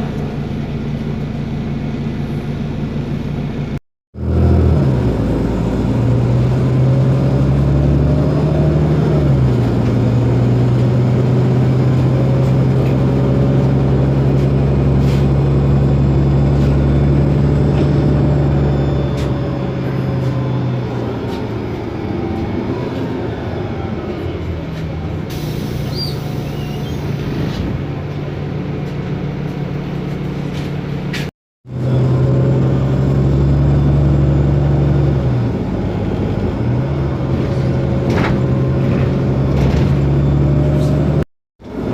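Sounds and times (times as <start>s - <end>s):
bus diesel engine humming: 0.0s - 41.9s
drivetrain whine: 9.3s - 25.1s.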